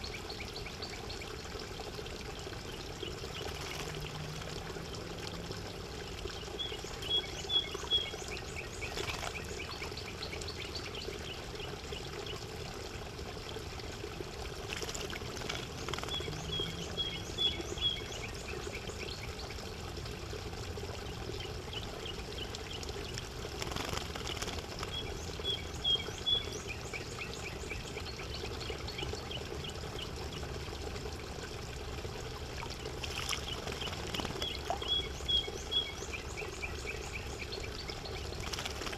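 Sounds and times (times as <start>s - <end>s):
running water trickling: 0.0s - 38.9s.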